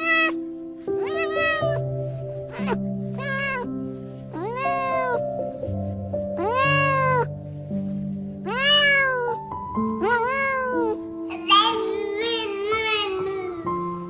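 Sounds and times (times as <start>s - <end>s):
cat meowing: 0.0s - 0.4s, 1.0s - 1.8s, 2.5s - 5.2s, 6.4s - 7.3s, 8.4s - 13.7s
background music with held notes: 0.0s - 14.0s.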